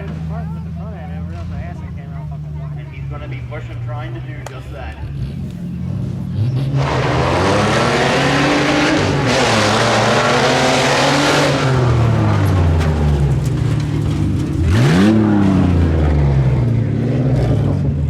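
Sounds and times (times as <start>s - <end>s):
truck engine revving hard: 4.9s - 18.0s.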